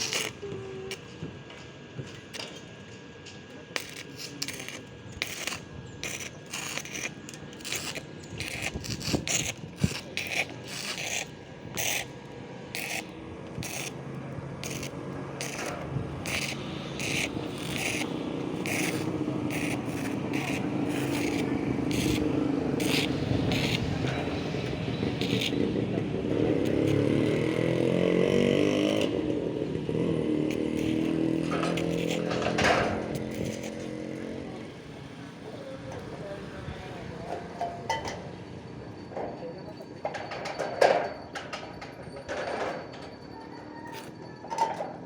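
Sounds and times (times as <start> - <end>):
scraping strokes on metal: 0.0 - 1.2, 3.6 - 34.8
low motor hum: 12.6 - 35.1.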